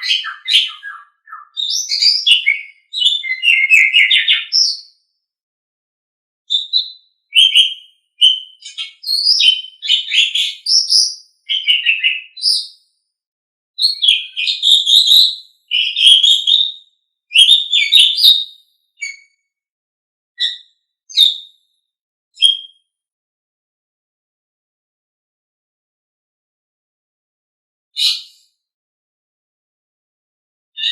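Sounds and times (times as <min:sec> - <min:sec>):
starling singing: 0:00.0 - 0:04.8, 0:06.5 - 0:12.6, 0:17.3 - 0:18.4.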